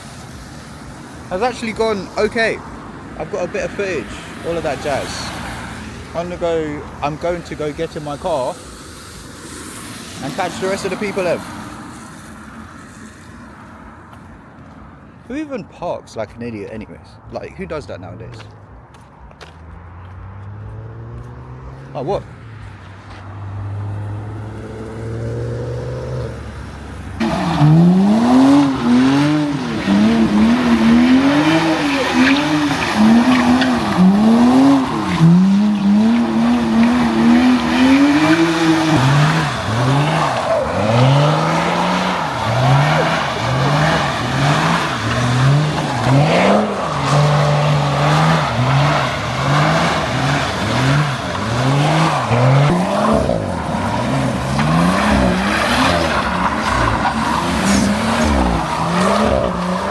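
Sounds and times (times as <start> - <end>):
car engine revving: 1.1 - 2.6, 3.2 - 13.4, 19.7 - 59.9
tyres squealing: 27.2 - 59.9.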